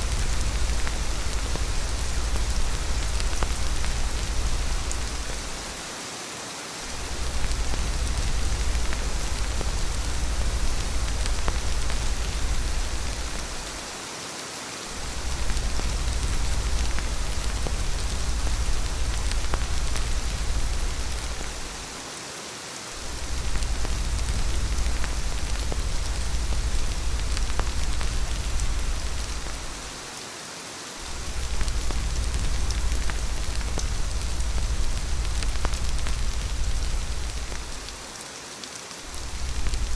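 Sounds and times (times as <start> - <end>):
deep low rumble: 0.0 - 5.7, 7.0 - 13.8, 15.0 - 21.8, 23.0 - 29.9, 31.1 - 37.9, 39.2 - 39.9
steady rain patter: 0.0 - 39.9.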